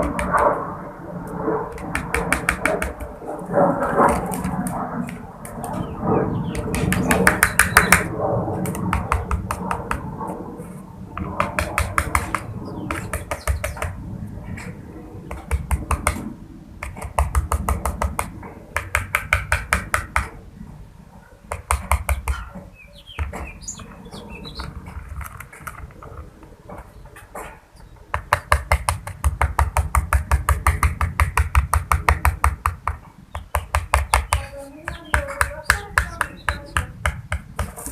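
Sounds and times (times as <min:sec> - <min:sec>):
rapid tapping: 0:00.0 - 0:00.7, 0:01.7 - 0:20.4, 0:21.5 - 0:26.3, 0:28.1 - 0:37.9.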